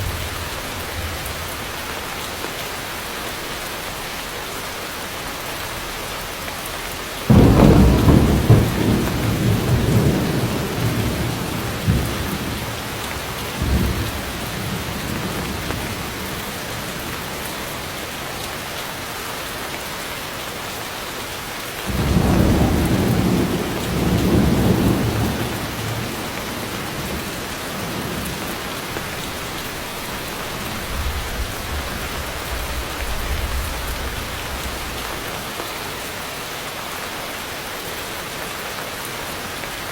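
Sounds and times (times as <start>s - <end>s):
heavy rain falling: 0.0s - 39.9s
thunder: 7.3s - 17.4s, 21.9s - 35.3s.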